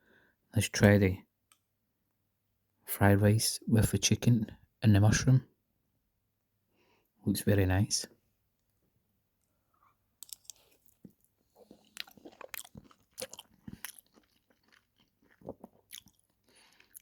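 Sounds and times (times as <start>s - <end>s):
person chewing food: 9.4s - 17.0s.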